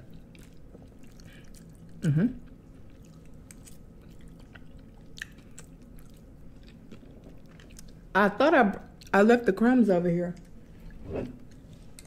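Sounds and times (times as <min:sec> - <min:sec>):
person chewing noodles: 0:00.0 - 0:08.1
person humming mmm: 0:02.0 - 0:02.5.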